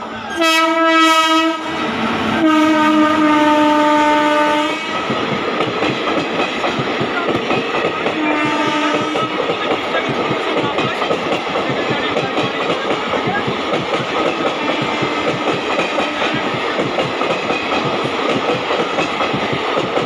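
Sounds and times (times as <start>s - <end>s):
locomotive horn blasts: 0.3s - 1.8s, 2.4s - 5.0s, 8.1s - 9.4s, 14.6s - 16.4s
train wheels clattering on track: 0.4s - 20.0s.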